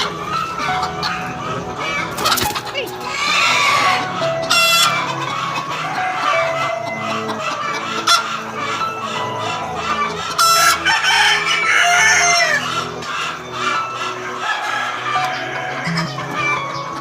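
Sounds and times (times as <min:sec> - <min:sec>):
chickens clucking: 0:00.0 - 0:17.0
rooster crowing: 0:03.1 - 0:13.0, 0:13.8 - 0:16.6.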